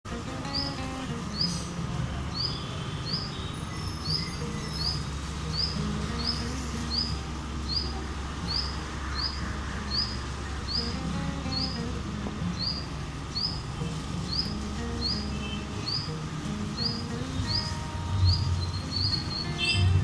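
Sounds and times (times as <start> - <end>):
bird rising chirp: 2.3 - 13.6, 16.8 - 20.0.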